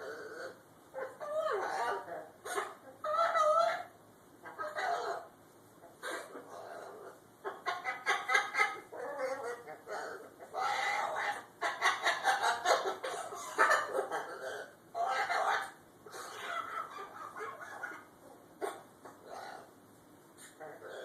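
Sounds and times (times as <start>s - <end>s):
parrot mumbling babble: 0.0s - 2.3s.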